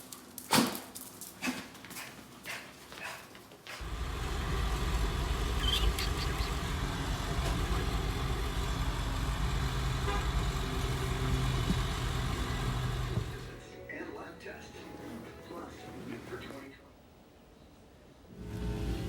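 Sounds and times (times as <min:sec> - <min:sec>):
car engine and road noise: 0:03.8 - 0:13.6, 0:18.3 - 0:19.0.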